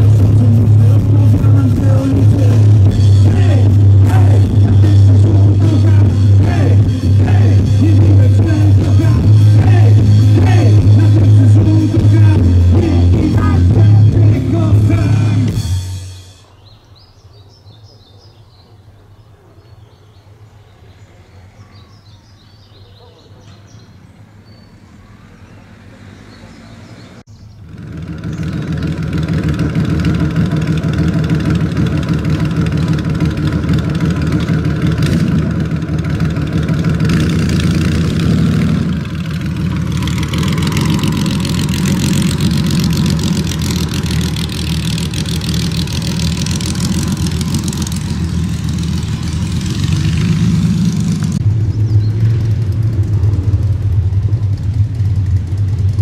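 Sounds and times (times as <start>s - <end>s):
motorcycle engine running: 0.0s - 16.4s, 27.3s - 56.0s.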